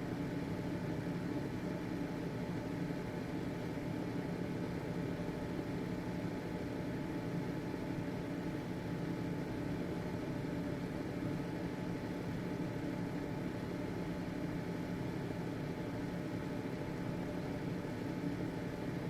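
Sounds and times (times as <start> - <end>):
ventilation fan humming: 0.0 - 19.0.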